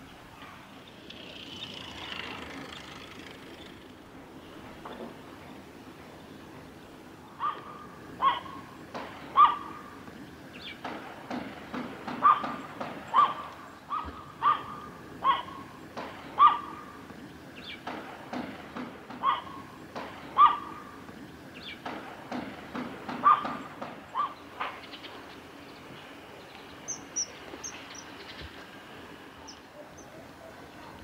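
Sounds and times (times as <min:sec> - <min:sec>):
bird calls: 0:06.1 - 0:11.2, 0:12.1 - 0:18.4, 0:19.1 - 0:31.0
thin high-pitched bird calls: 0:26.5 - 0:28.5, 0:29.4 - 0:30.2.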